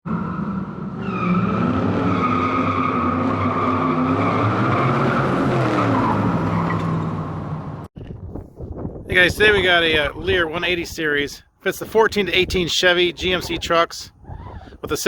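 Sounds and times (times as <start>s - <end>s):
tire squeal: 0.1s - 7.8s.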